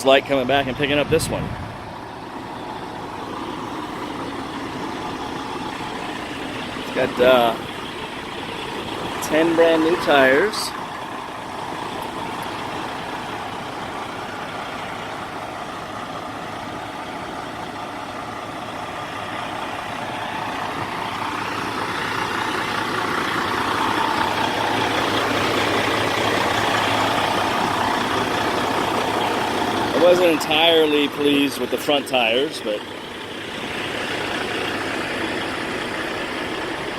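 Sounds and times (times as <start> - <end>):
truck engine idling: 0.0 - 36.9.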